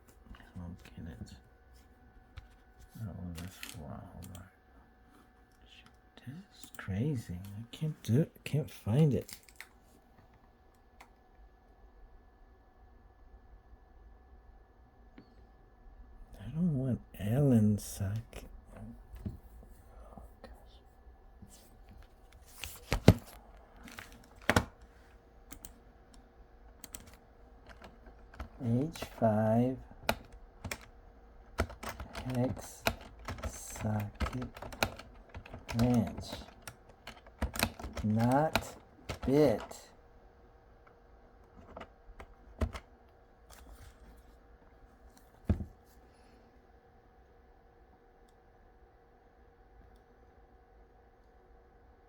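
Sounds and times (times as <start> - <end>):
computer keyboard typing: 22.4 - 24.9, 25.5 - 40.0, 41.4 - 42.9.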